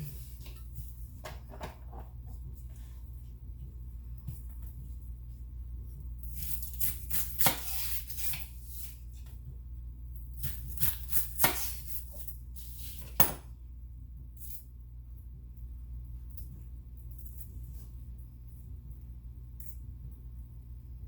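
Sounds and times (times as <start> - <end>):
scraping and rustling on counter: 10.6 - 13.5.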